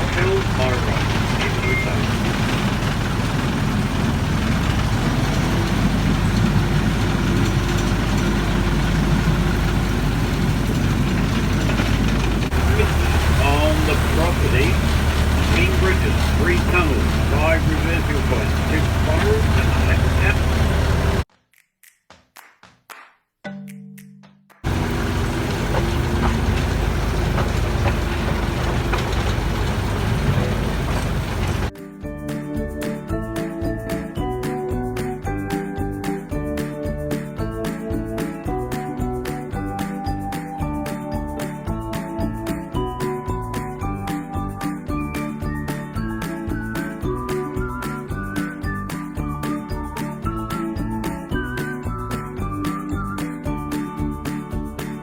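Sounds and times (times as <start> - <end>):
train diesel engine running: 0.0 - 21.3, 24.6 - 31.7.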